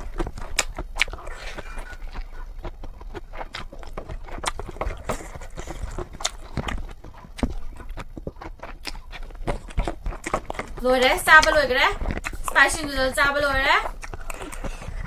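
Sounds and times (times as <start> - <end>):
mouth clicks and chewing smacks: 0.0 - 15.0
slurping noodles: 14.0 - 15.0.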